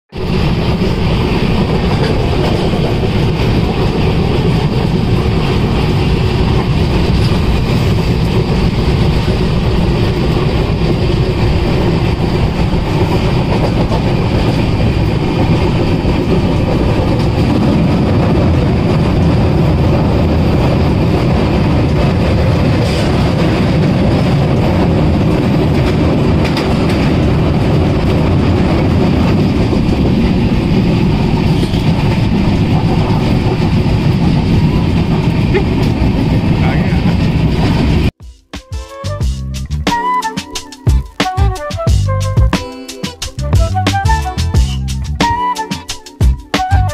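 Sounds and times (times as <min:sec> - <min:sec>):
train rumbling and rattling: 0:00.0 - 0:46.9.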